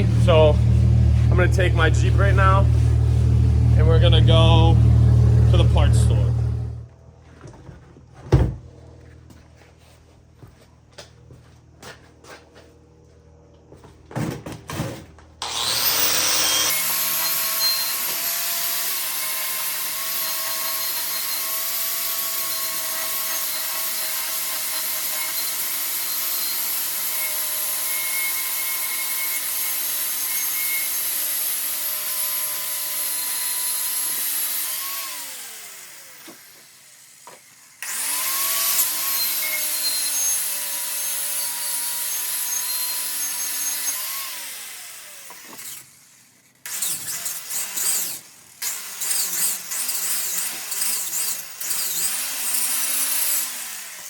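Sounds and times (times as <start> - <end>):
power tool sanding metal: 0.0 - 6.8, 15.4 - 54.0.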